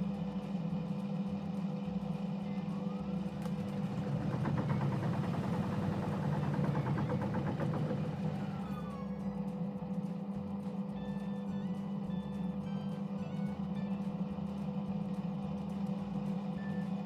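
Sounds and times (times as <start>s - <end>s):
washing machine motor humming: 3.1s - 9.0s
drum ticking rapidly: 3.5s - 8.8s.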